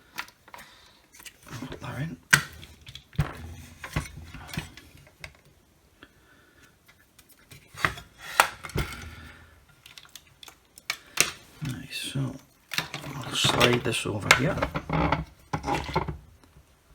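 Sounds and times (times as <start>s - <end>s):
plastic and metal parts clicking: 7.2s - 11.5s.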